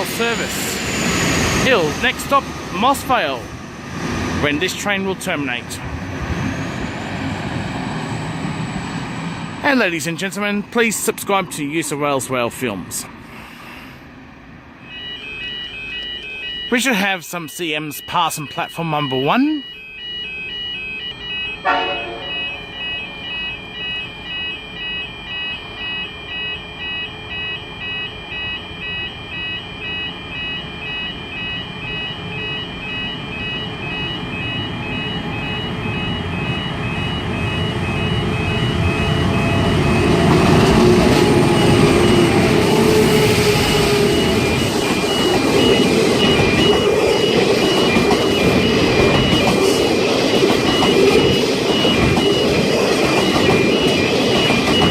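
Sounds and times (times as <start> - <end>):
level crossing warning bells: 0.0 - 13.9, 14.7 - 54.9
diesel train passing: 0.0 - 15.5, 20.0 - 25.4, 28.4 - 54.9
train wheels on rail: 35.9 - 54.9.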